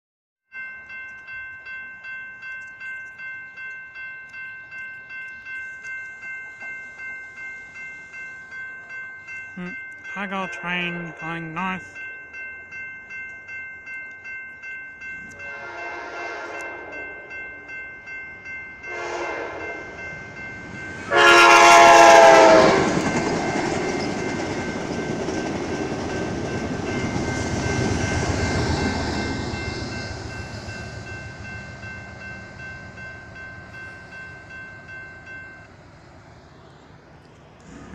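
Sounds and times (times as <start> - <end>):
railroad crossing bell ringing: 0.5 - 37.6
train horn blasts: 15.4 - 17.3, 18.9 - 20.0, 21.1 - 23.0
train wheels rumbling on rail: 18.8 - 37.9.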